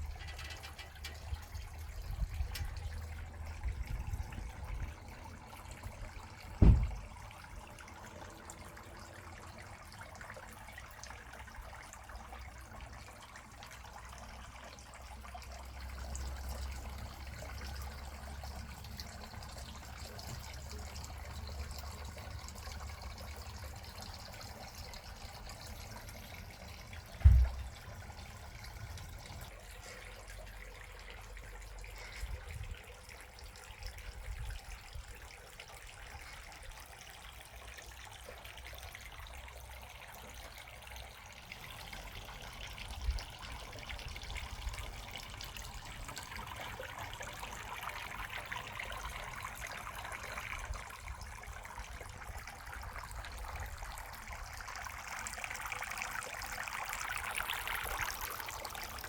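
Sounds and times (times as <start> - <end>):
water trickling: 0.0 - 59.0
low bumps: 6.6 - 7.2, 27.2 - 29.5.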